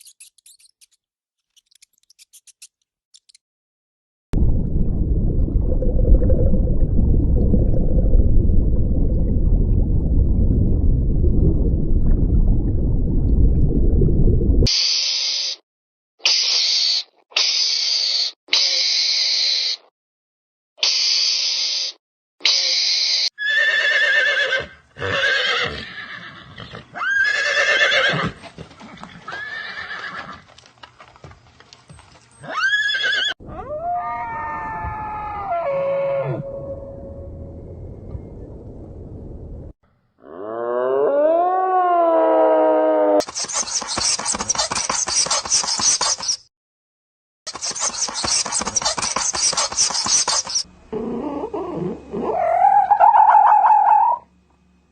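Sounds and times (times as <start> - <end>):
horse whinnying: 23.4 - 28.4, 29.0 - 30.5, 32.4 - 33.4, 35.4 - 36.5
animal call with falling tones: 32.4 - 37.1, 40.2 - 43.2, 50.4 - 54.3
rapid scratching clicks: 43.2 - 46.5, 47.5 - 50.6.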